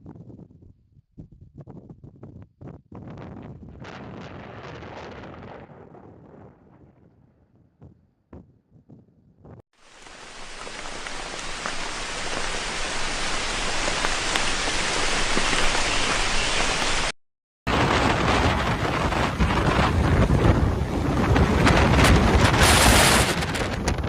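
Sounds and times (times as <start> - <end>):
heavy rain falling: 9.8 - 23.4
rush of wind and waves: 9.9 - 17.1, 17.7 - 24.0.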